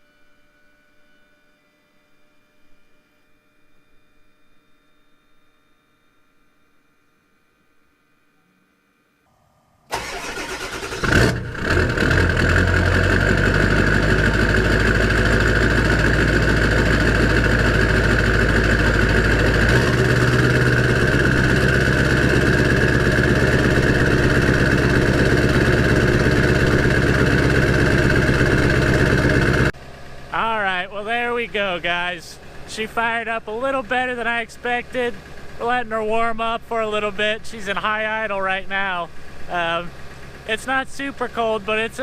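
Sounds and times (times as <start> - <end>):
diesel engine cranking: 9.9 - 42.0
diesel engine idling: 9.9 - 42.0.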